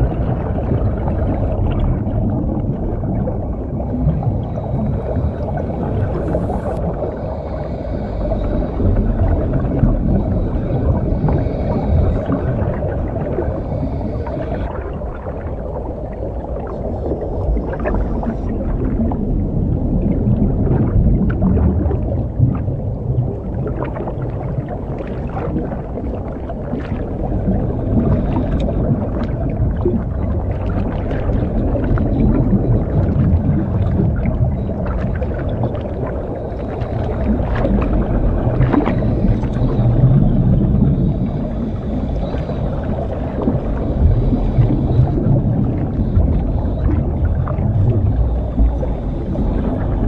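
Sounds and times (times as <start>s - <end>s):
scuba regulator breathing: 0.0s - 2.6s, 3.6s - 19.2s, 35.8s - 50.0s
exhaled bubbles: 0.0s - 50.0s
hissing: 3.8s - 6.8s, 36.2s - 43.4s
small underwater clicks: 26.8s - 50.0s.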